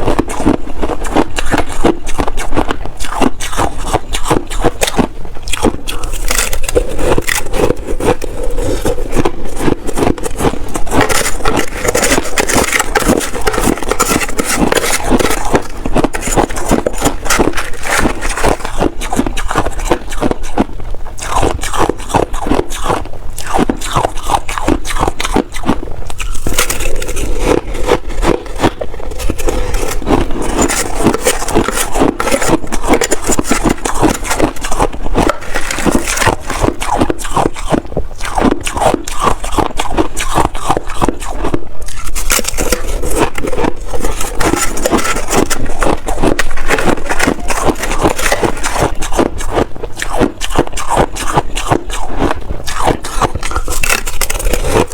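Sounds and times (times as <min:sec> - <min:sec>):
chewing crunchy ice: 0:00.0 - 0:54.9.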